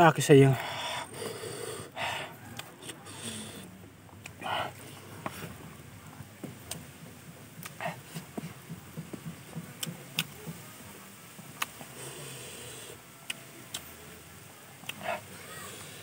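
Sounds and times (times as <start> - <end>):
person chewing: 2.5 - 5.6, 9.8 - 10.5, 11.4 - 14.1, 14.8 - 15.9
mouth clicks: 11.4 - 16.0.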